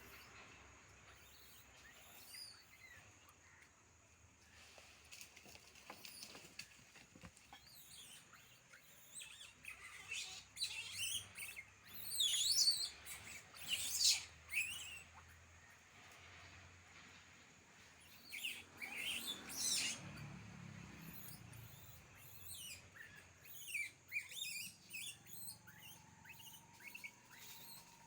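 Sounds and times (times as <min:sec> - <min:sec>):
high-pitched animal chirps and squeaks: 0:01.2 - 0:03.0, 0:07.6 - 0:15.4, 0:18.0 - 0:20.2, 0:21.0 - 0:28.0.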